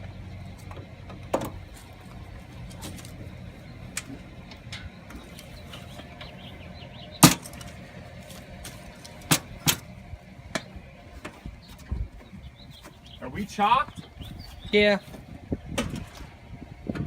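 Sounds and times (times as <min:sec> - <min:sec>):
low steady rumble: 0:00.0 - 0:17.0
sharp knocks and clanks: 0:00.6 - 0:01.7, 0:07.2 - 0:07.8.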